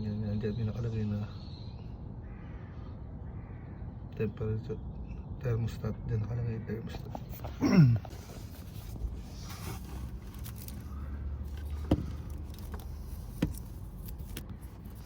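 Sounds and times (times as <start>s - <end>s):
clicks and knocks of handling parts: 7.4s - 15.0s.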